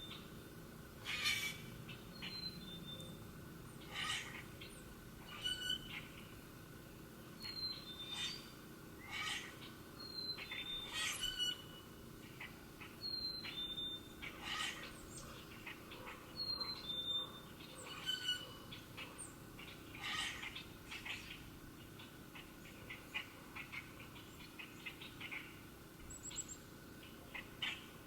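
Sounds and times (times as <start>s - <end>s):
songbirds whistling: 1.1s - 3.2s, 7.4s - 21.4s.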